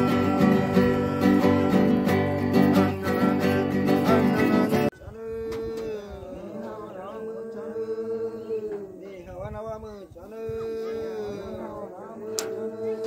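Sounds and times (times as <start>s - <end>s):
strummed acoustic guitar music: 0.0s - 4.9s
chanting with sliding note: 0.0s - 9.0s, 10.5s - 13.0s.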